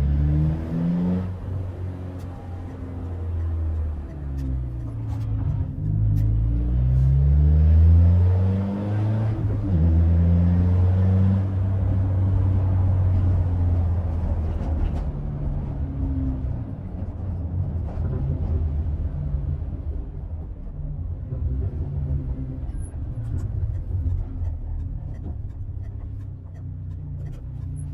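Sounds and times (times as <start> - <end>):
car engine revving: 0.0 - 14.7.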